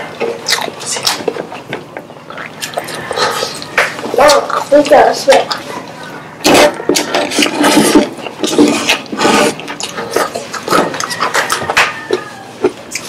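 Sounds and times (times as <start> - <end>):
crunching fried chicken skin: 2.3 - 5.8, 6.4 - 13.0
fingers tearing chicken: 8.5 - 13.0.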